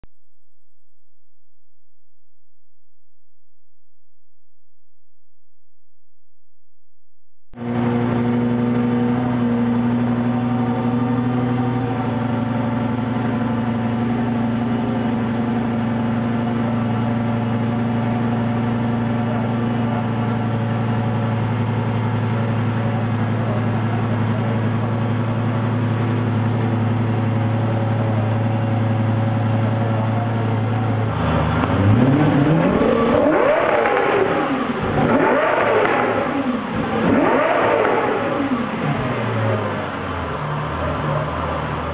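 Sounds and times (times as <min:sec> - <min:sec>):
sports car engine idling: 0:07.6 - 0:41.9
engine revving: 0:29.8 - 0:41.9.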